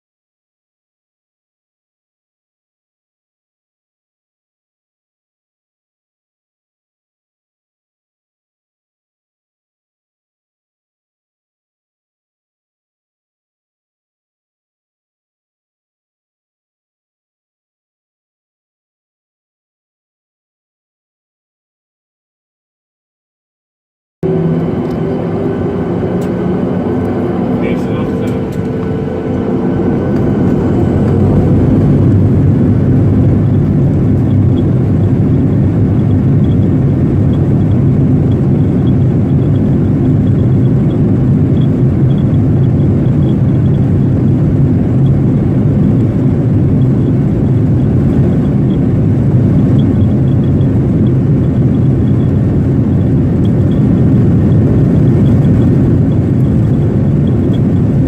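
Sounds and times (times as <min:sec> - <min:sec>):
airplane cabin engine rumble: 0:24.2 - 0:58.0.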